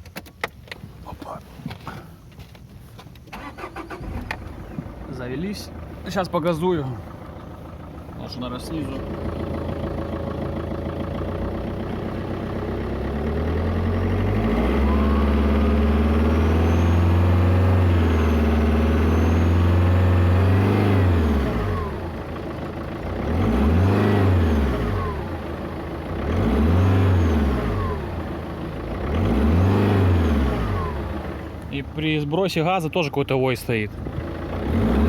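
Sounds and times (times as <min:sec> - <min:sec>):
diesel engine idling and revving: 0:00.0 - 0:35.0
turbocharger whistle: 0:14.5 - 0:20.2.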